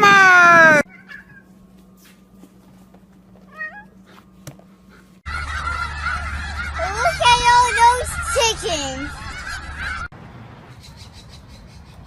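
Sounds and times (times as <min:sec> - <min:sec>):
flock of geese honking: 0:05.3 - 0:10.1.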